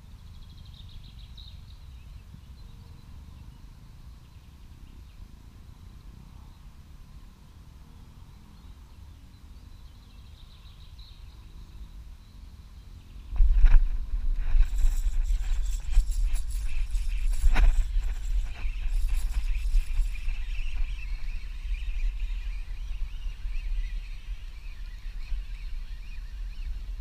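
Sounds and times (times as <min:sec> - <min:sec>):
rapid bird trill: 0:13.4 - 0:27.0.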